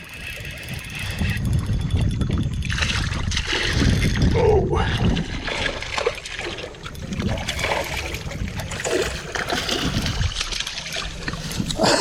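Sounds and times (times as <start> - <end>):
low wind rumble on microphone: 0.0 - 12.0
water splashing: 2.6 - 12.0.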